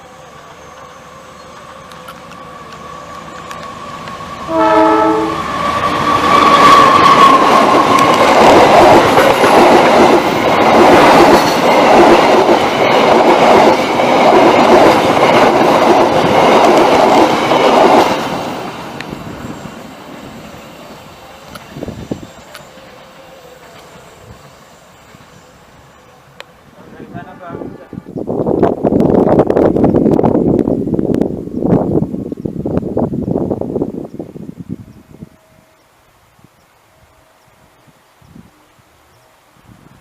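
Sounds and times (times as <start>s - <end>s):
train rumbling past: 0.0s - 40.0s
train horn blast: 4.5s - 7.0s, 27.5s - 28.2s.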